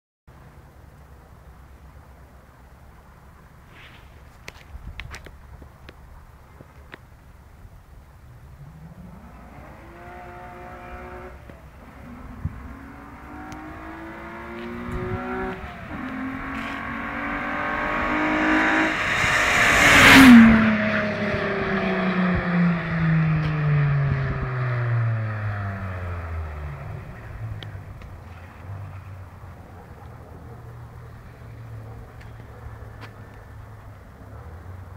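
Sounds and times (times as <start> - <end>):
car engine accelerating: 8.5 - 30.1.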